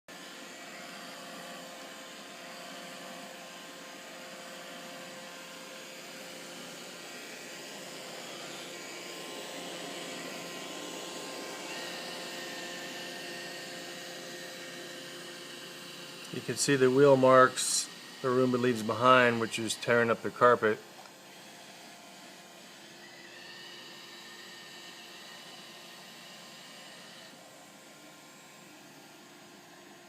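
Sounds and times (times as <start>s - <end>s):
small motor whirring hum: 0.1s - 30.0s
whining tones: 15.8s - 27.4s.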